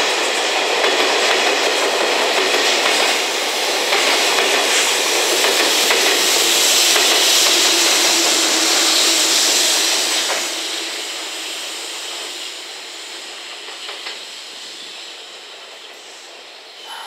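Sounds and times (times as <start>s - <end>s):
electric locomotive rolling past: 0.0s - 17.0s.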